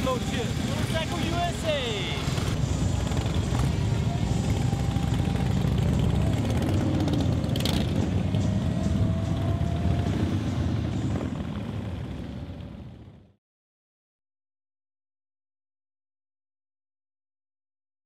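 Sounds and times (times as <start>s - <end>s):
motorcycle engine rumbling: 0.0s - 13.3s.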